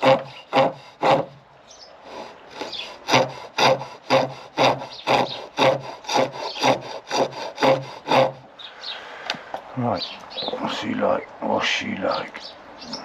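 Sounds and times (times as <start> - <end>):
wood cutting on a pole lathe: 0.0 - 1.4, 2.1 - 8.5.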